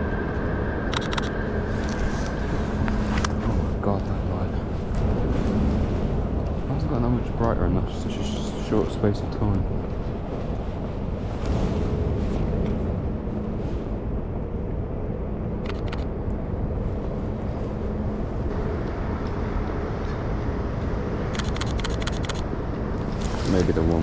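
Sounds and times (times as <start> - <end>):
low hum: 0.0 - 24.0
urban low rumble: 0.0 - 24.0
sharp clicks: 0.9 - 1.4, 15.6 - 16.1, 21.3 - 22.4.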